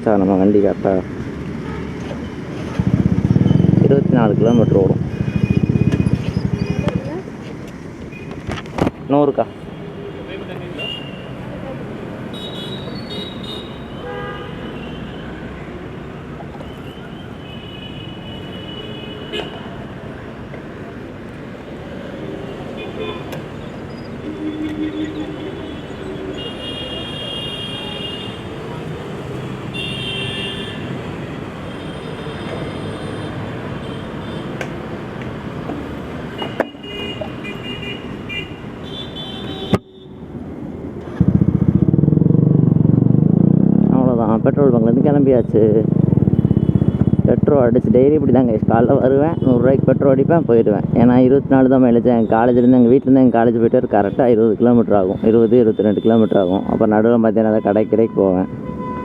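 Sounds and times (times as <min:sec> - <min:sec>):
low rumble of road traffic: 0:00.0 - 0:59.0
motorcycle engine running: 0:02.5 - 0:07.3, 0:41.0 - 0:44.5, 0:45.4 - 0:47.5
vehicle horn toots: 0:12.3 - 0:15.3, 0:16.7 - 0:19.7, 0:24.2 - 0:28.4, 0:29.7 - 0:31.0, 0:36.4 - 0:40.2, 0:57.6 - 0:59.0.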